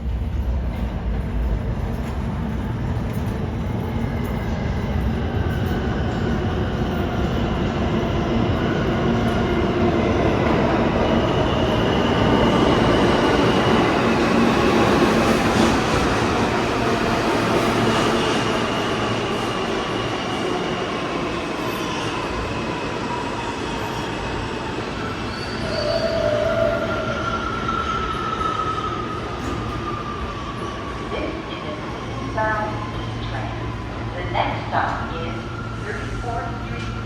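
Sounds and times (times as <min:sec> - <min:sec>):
train rumble: 0:00.0 - 0:21.3
train wheels squealing on rails: 0:10.4 - 0:34.0.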